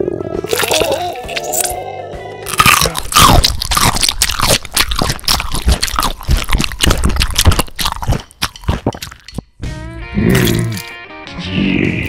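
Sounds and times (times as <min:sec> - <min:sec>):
crunching and chewing food: 0:00.5 - 0:01.8, 0:02.5 - 0:09.5, 0:10.3 - 0:11.0
wet squishes: 0:02.8 - 0:09.4.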